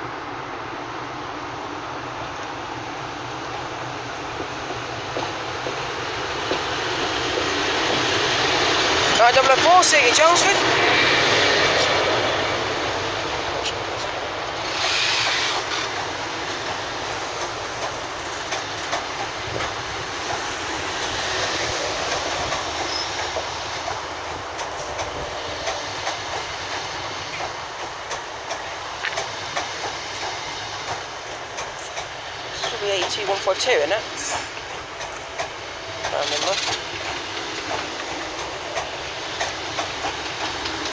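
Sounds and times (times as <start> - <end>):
train coaches rolling past: 0.0 - 40.9
wheels clicking over rail joints: 13.2 - 40.9.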